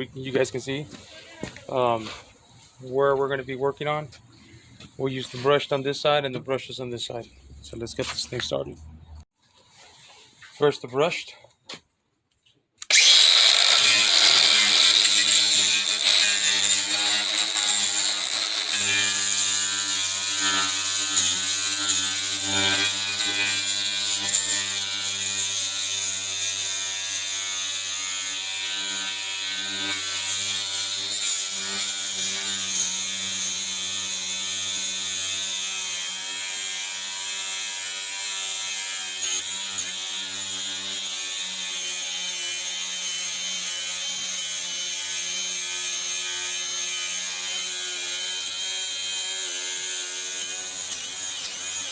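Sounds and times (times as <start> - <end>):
angle grinder sanding metal: 12.9 - 51.9.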